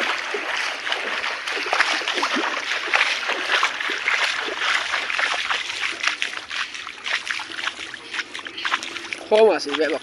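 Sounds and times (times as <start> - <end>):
floodwater splashing and gurgling: 0.0 - 10.0.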